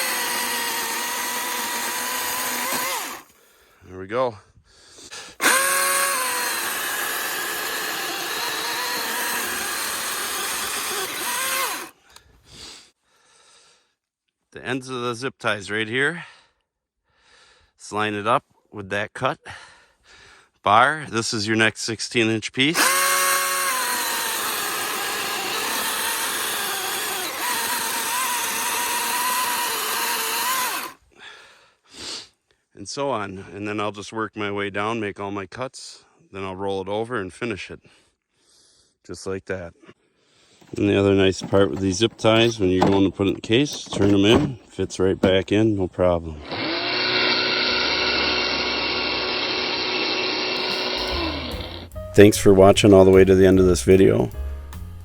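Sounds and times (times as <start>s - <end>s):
chainsaw sawing through log: 0.0s - 3.4s, 5.2s - 12.0s, 22.7s - 31.0s, 40.6s - 45.4s, 46.3s - 51.9s.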